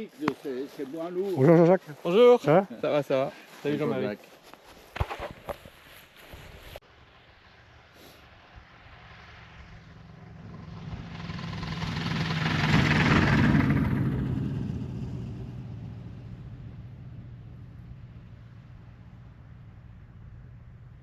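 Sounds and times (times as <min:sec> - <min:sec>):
light aircraft passing by: 0:06.8 - 0:21.0.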